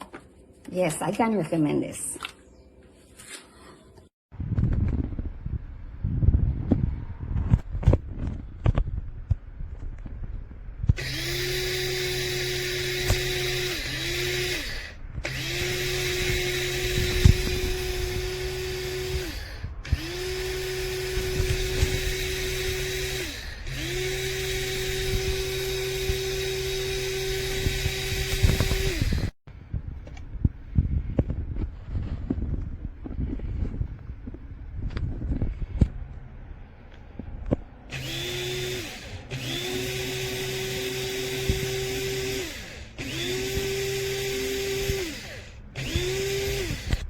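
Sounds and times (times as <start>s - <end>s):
blade grinder motor whining: 10.9s - 29.4s, 37.9s - 47.0s.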